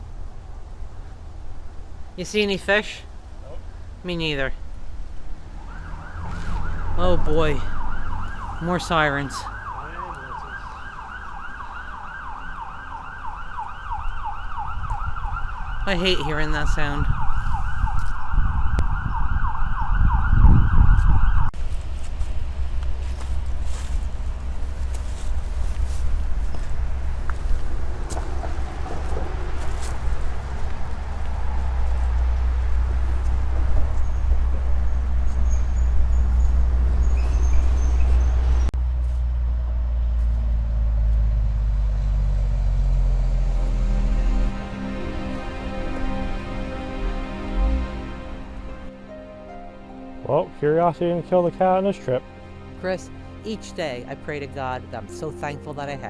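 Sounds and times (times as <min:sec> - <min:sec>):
road traffic passing: 0:00.0 - 0:56.0
emergency siren yelping: 0:05.4 - 0:21.5
low rumble: 0:14.0 - 0:49.0
small birds chirping: 0:33.9 - 0:38.7.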